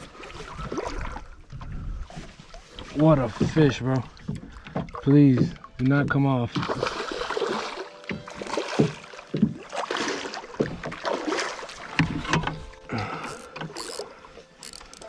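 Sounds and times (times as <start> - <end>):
knocks and scrapes on boat: 2.1 - 6.8, 10.4 - 12.8.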